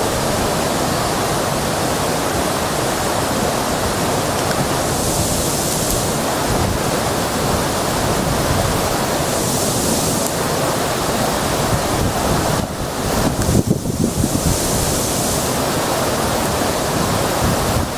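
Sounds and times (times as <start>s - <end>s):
river rushing: 0.0s - 17.9s
wind buffeting microphone: 3.7s - 17.9s.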